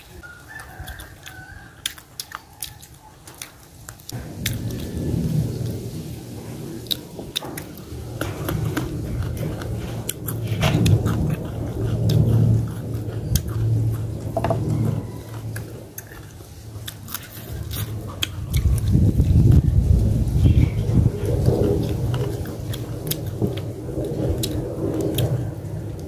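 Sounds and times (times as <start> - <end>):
person chewing: 0.0 - 6.1, 6.7 - 20.3, 21.2 - 26.0.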